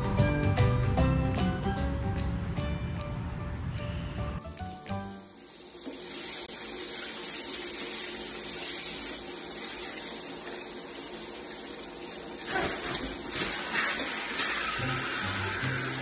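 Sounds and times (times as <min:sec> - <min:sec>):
shower spray running: 0:04.4 - 0:16.0.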